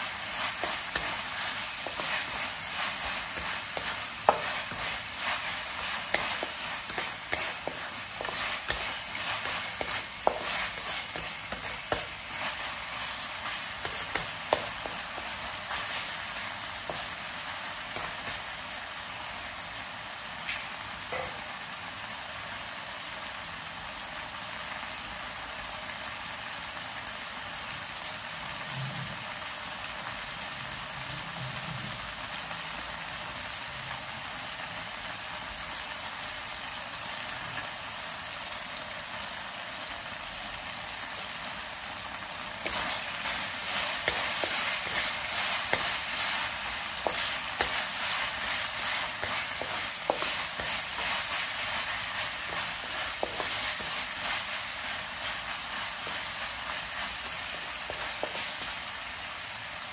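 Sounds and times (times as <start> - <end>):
wooden spatula scraping a pan: 0.0 - 18.6, 42.6 - 59.0
meat sizzling in a wok: 0.0 - 59.9.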